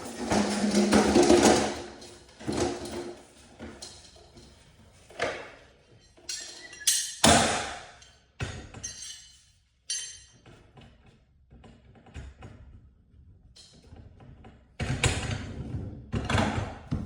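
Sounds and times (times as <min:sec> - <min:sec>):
metal tools clanking: 0:05.9 - 0:10.5.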